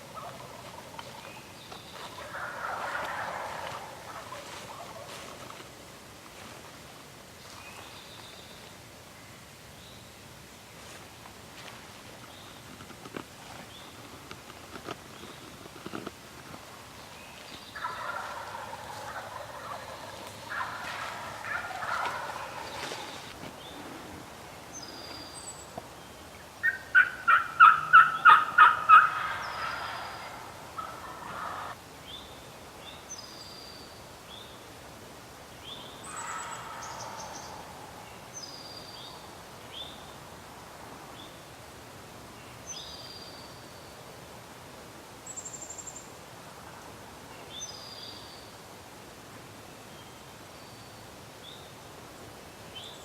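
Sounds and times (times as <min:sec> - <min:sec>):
songbirds chirping: 0:00.0 - 0:53.0
turkey gobbling: 0:00.2 - 0:01.3, 0:02.0 - 0:05.4, 0:17.8 - 0:23.4, 0:26.6 - 0:31.8, 0:36.1 - 0:37.8.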